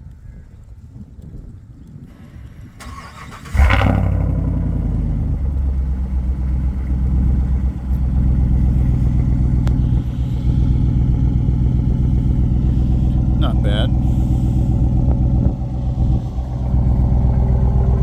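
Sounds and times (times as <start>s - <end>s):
starter motor cranking: 2.8s - 4.0s
loud deep engine idling: 3.6s - 18.0s.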